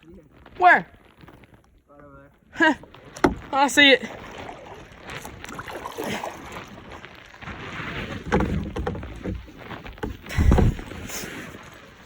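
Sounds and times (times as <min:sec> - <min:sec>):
water noise: 0:02.5 - 0:12.0
hull and paddle knocks: 0:03.2 - 0:03.4, 0:08.2 - 0:11.0
heavy low thump: 0:10.0 - 0:11.0.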